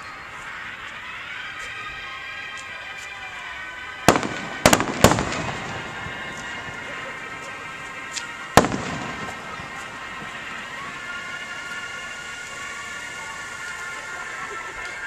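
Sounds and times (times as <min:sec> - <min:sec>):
fireworks crackling: 0:00.0 - 0:15.0
fireworks bangs: 0:04.0 - 0:14.4.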